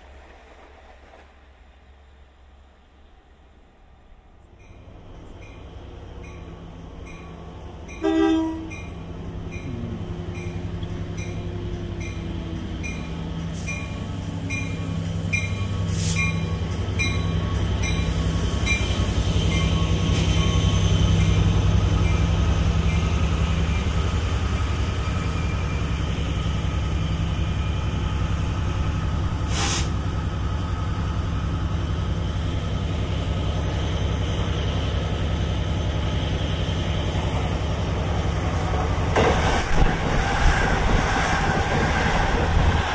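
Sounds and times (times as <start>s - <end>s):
train passing at speed: 0.0s - 42.9s
train horn blast: 8.0s - 8.8s.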